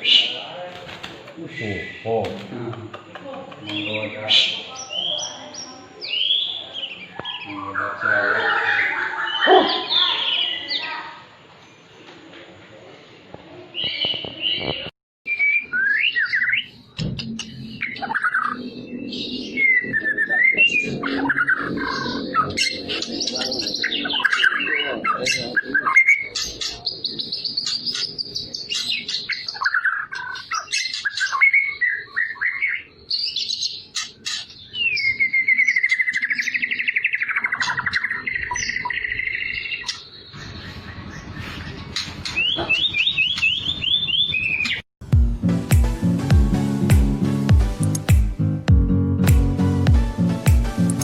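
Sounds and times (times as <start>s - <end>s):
bird singing whistles and trills: 15.3s - 44.8s.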